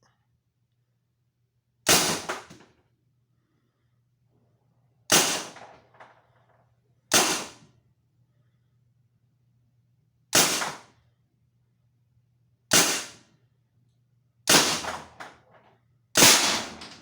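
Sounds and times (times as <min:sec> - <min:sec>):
paintball marker shots: 0:05.1 - 0:05.8, 0:07.1 - 0:07.6, 0:10.4 - 0:10.8, 0:12.7 - 0:13.2, 0:14.5 - 0:15.2.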